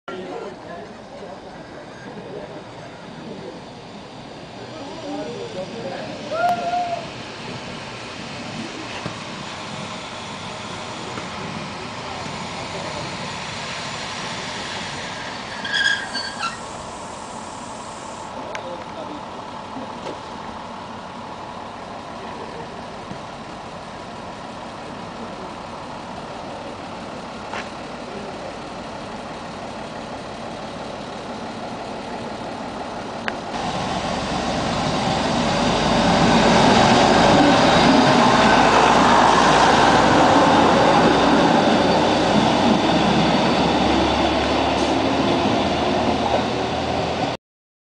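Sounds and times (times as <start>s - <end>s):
diesel railcar engine: 0.1s - 47.4s
train wheels on rails: 0.1s - 47.4s.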